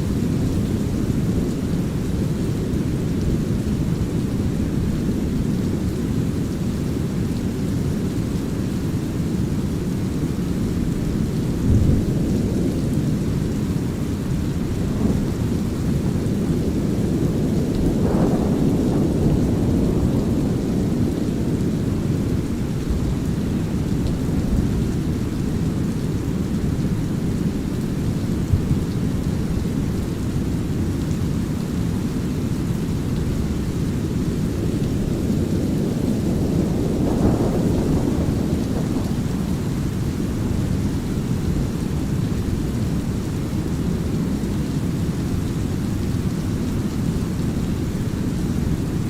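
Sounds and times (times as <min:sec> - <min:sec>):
brown noise rumbling hiss: 0:00.0 - 0:49.0
light rain: 0:00.0 - 0:49.0
thunder rumble: 0:10.7 - 0:25.2, 0:34.2 - 0:43.2.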